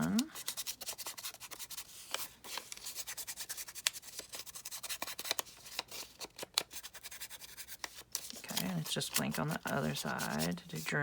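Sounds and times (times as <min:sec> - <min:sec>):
paper being rubbed by hand: 0:06.8 - 0:11.0.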